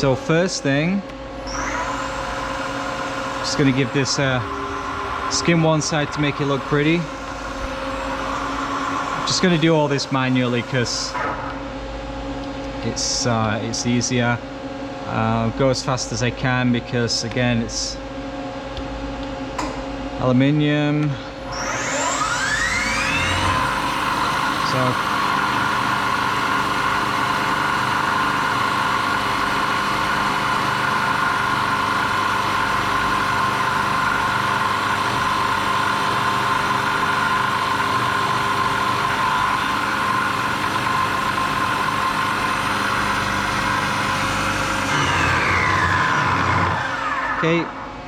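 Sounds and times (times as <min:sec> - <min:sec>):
mill cutting metal: 0:00.0 - 0:11.7, 0:21.5 - 0:48.0
milling machine whine: 0:00.0 - 0:14.2, 0:21.3 - 0:48.0.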